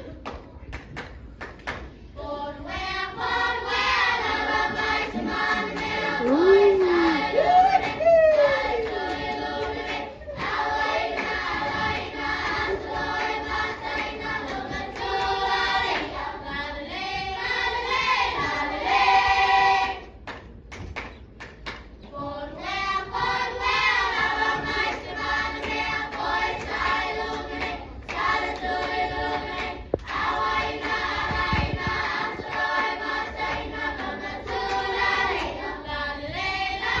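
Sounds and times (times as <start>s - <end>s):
sharp claps or taps: 0.3s - 1.9s, 20.3s - 21.9s
choir singing: 2.2s - 20.1s, 22.1s - 37.0s.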